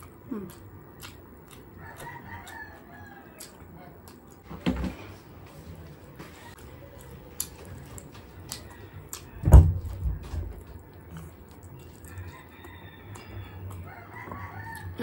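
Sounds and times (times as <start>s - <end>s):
wet chewing and crunches: 0.0s - 4.5s, 6.5s - 15.0s
loud low thump: 9.4s - 10.6s.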